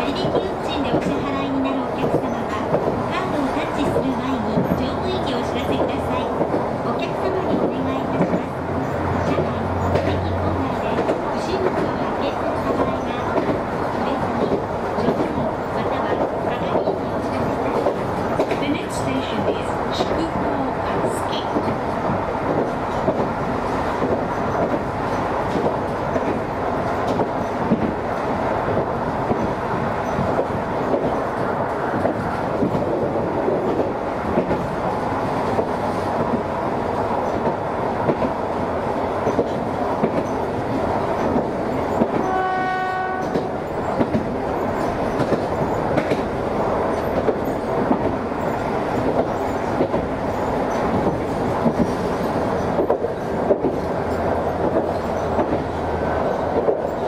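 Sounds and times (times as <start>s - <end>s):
rail joint clicks: 0.0s - 57.0s
train rumble of motors and wheels: 0.0s - 57.0s
train horn: 42.1s - 43.6s.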